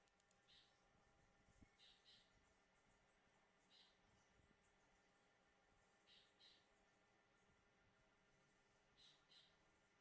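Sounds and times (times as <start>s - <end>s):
faint high-pitched chirps: 0.0s - 6.9s, 8.9s - 10.0s.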